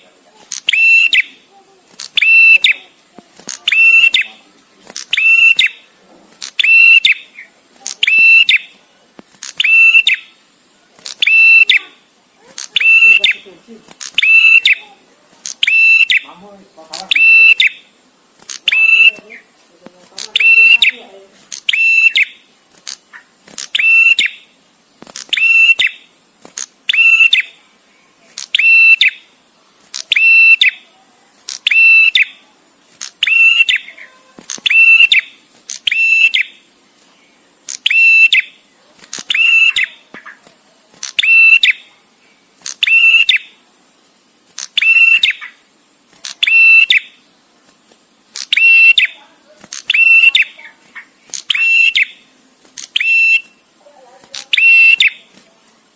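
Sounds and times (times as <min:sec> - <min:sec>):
bird making shrill buzzy call: 0:00.5 - 0:01.4, 0:02.0 - 0:02.9, 0:03.6 - 0:04.4, 0:05.0 - 0:08.7, 0:09.4 - 0:10.3, 0:11.1 - 0:12.0, 0:12.6 - 0:13.4, 0:14.0 - 0:14.9, 0:15.5 - 0:16.3, 0:17.1 - 0:17.9, 0:18.5 - 0:19.5, 0:20.3 - 0:21.0, 0:21.6 - 0:24.5, 0:25.2 - 0:26.1, 0:26.9 - 0:27.6, 0:28.4 - 0:29.2, 0:30.0 - 0:30.8, 0:31.5 - 0:32.4, 0:33.1 - 0:36.6, 0:37.7 - 0:38.6, 0:39.3 - 0:40.4, 0:41.1 - 0:41.8, 0:42.6 - 0:43.5, 0:44.6 - 0:45.6, 0:46.4 - 0:47.2, 0:48.4 - 0:49.2, 0:49.8 - 0:52.2, 0:52.8 - 0:53.6, 0:54.4 - 0:55.2.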